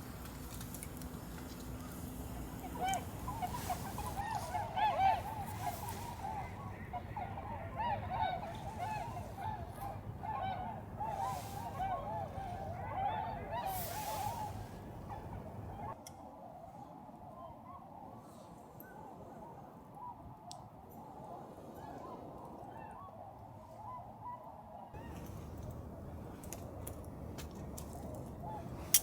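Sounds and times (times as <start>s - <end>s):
swans honking: 0.0s - 16.0s, 25.0s - 29.0s.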